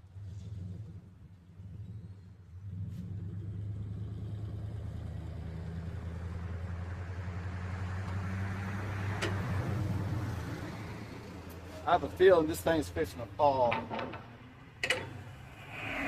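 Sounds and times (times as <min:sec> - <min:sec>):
engine running with low hum: 0:00.0 - 0:16.0.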